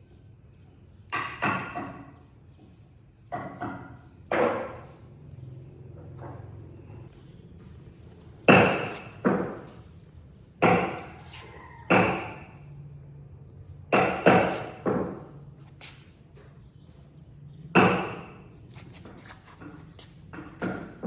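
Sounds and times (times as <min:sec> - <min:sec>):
sharp knocks: 0:01.1 - 0:02.1, 0:03.3 - 0:04.9, 0:08.5 - 0:09.8, 0:10.6 - 0:11.2, 0:11.9 - 0:12.5, 0:13.9 - 0:15.3, 0:17.7 - 0:18.4.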